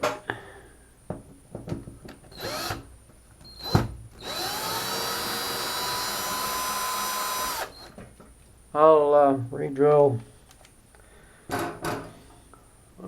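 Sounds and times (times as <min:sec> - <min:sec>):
power drill whining: 0:02.3 - 0:02.8, 0:03.4 - 0:08.0.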